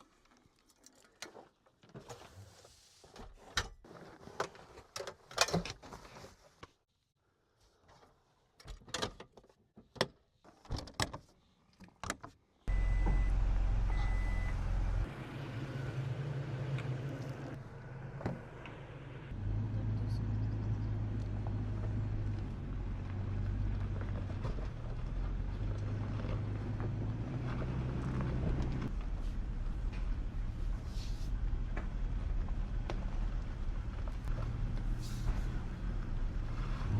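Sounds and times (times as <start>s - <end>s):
pickup truck engine drone: 12.7s - 36.9s
road noise: 12.7s - 36.9s.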